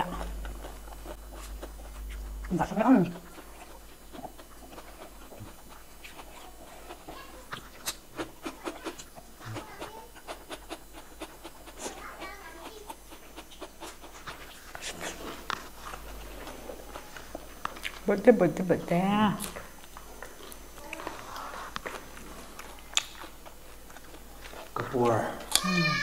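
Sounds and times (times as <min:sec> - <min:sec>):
person chewing with lip smacks: 0:00.0 - 0:18.1, 0:19.4 - 0:25.7.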